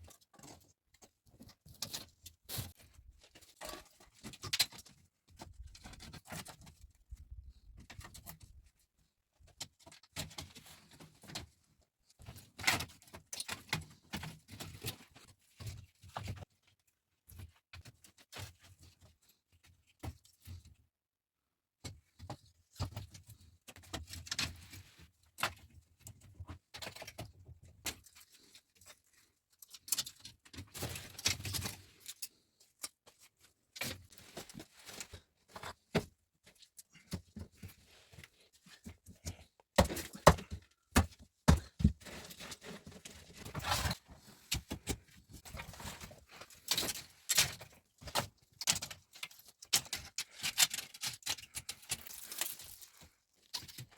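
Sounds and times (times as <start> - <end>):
knocks and taps of objects handled: 39.0 - 42.0.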